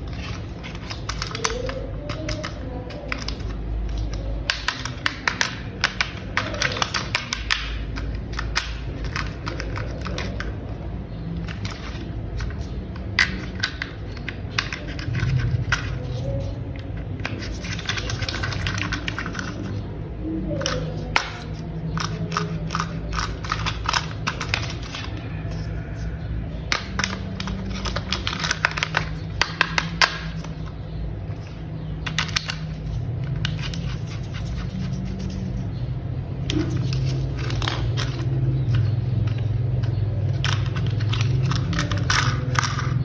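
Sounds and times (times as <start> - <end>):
plastic toy parts clicking: 0.0 - 10.6, 11.4 - 19.8, 20.6 - 35.7, 36.4 - 43.0.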